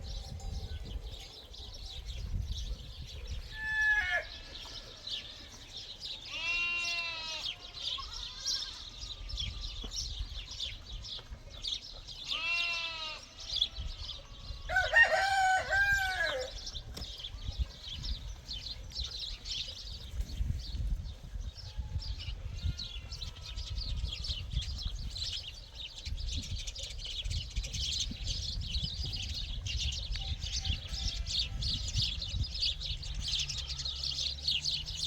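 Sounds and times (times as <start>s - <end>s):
goats bleating: 6.3s - 8.9s, 12.2s - 13.4s
rooster crowing: 14.7s - 16.6s
small birds chirping: 16.5s - 35.0s.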